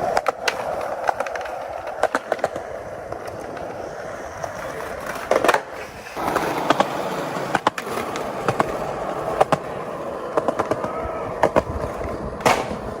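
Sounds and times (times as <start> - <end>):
skateboard clacks and pops: 0.0 - 13.0
skateboard wheels rolling on pavement: 0.0 - 13.0.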